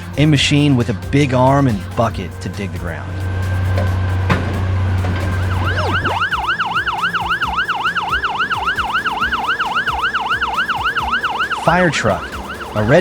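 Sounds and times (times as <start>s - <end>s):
low steady drone: 0.0s - 13.0s
siren yelping: 5.1s - 13.0s.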